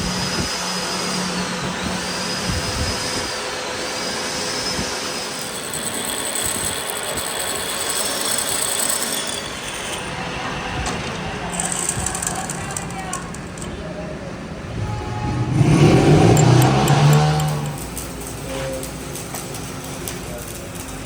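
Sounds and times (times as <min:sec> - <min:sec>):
power tool whining: 0:00.0 - 0:12.6, 0:14.9 - 0:19.1.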